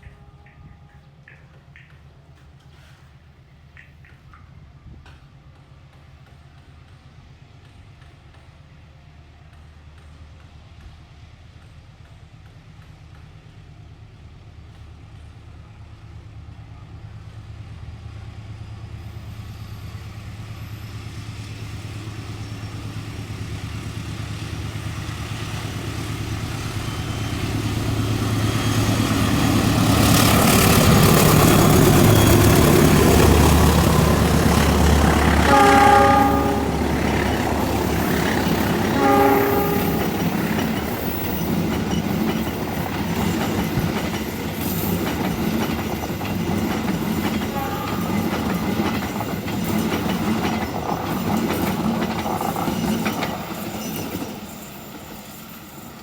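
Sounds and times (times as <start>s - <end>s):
train approaching: 0.0s - 56.0s
train clatter on rails: 0.0s - 56.0s
train horn blasts: 33.8s - 40.6s, 47.4s - 48.6s.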